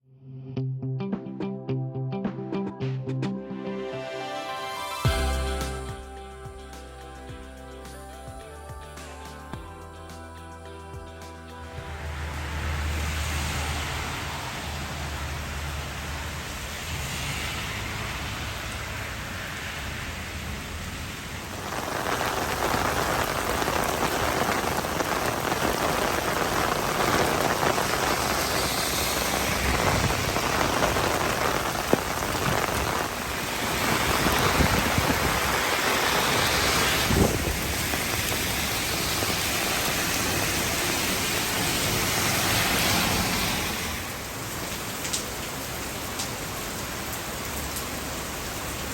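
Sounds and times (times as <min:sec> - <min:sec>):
heavy rain splashing: 0:11.8 - 0:48.9.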